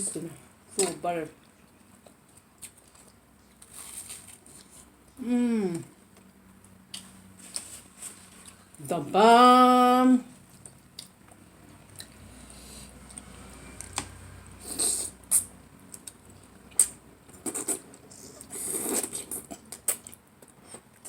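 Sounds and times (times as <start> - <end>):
chewing and mouth noises: 0.8 - 4.9, 10.5 - 12.3.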